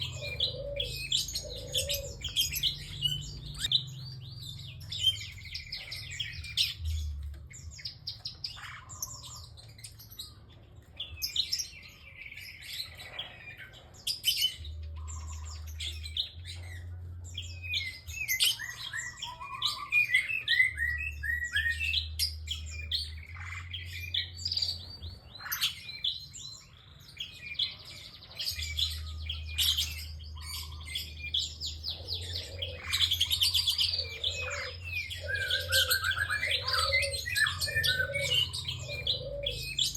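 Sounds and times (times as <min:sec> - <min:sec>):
bird chirping and trilling: 0:00.0 - 0:39.9.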